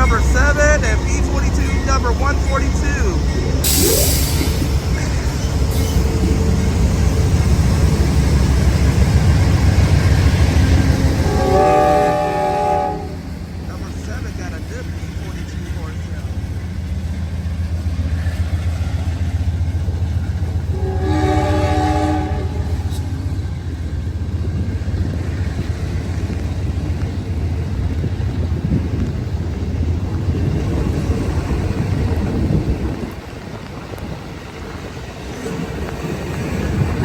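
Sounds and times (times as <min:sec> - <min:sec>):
locomotive engine drone: 0:00.0 - 0:37.0
train horn blast: 0:11.2 - 0:13.3, 0:20.7 - 0:23.1.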